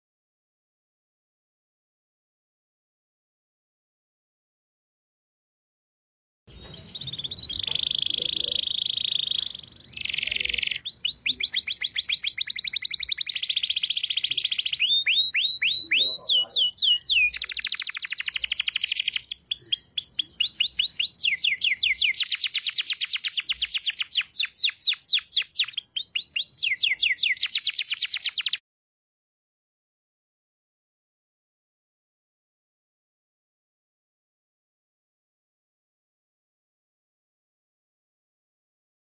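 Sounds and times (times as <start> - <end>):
songbird singing fast trills: 6.5 - 28.6.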